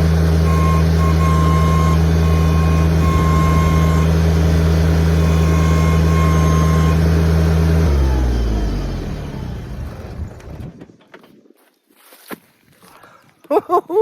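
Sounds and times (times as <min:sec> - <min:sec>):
tractor engine running: 0:00.0 - 0:11.1.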